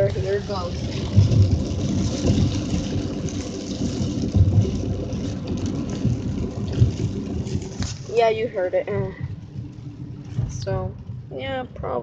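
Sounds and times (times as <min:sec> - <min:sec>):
heavy rain pouring: 0:00.0 - 0:12.0
low rumble: 0:00.0 - 0:12.0.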